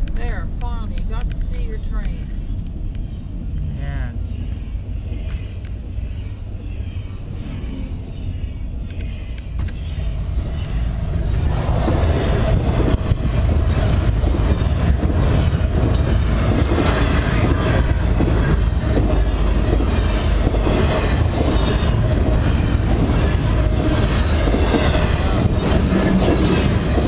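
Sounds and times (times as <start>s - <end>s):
rumble of wheels on rail: 0.0s - 27.0s
wheels clicking over rail joints: 8.9s - 27.0s.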